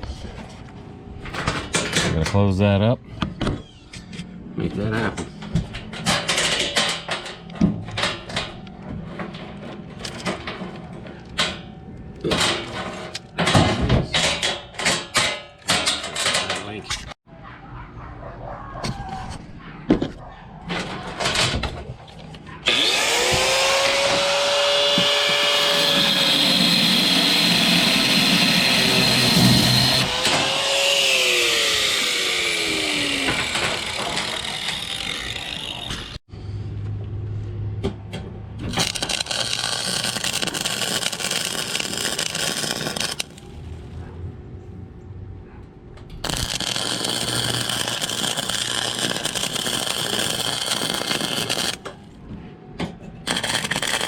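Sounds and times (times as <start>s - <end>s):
angle grinder cutting steel: 22.7s - 36.2s, 38.7s - 43.4s, 46.2s - 52.0s, 53.3s - 54.0s
welder arc crackling: 38.7s - 43.4s, 46.2s - 52.0s, 53.3s - 54.0s.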